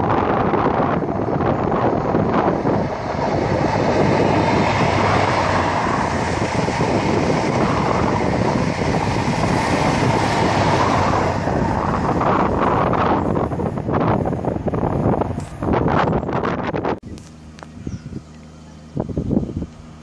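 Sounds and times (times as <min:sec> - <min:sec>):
train wheels rumbling and clattering: 0:00.0 - 0:16.8
train engine noise: 0:00.0 - 0:20.0.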